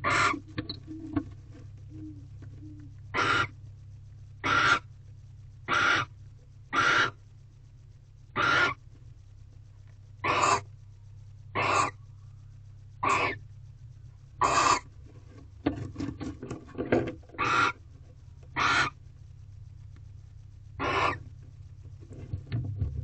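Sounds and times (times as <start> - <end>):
owl rasping hiss calls: 0.0 - 1.2, 1.9 - 3.6, 4.4 - 4.9, 5.7 - 7.2, 8.3 - 8.8, 10.2 - 10.7, 11.5 - 12.0, 13.0 - 13.5, 14.4 - 14.9, 17.4 - 17.8, 18.5 - 19.0, 20.8 - 21.3
steady low hum: 0.0 - 23.0.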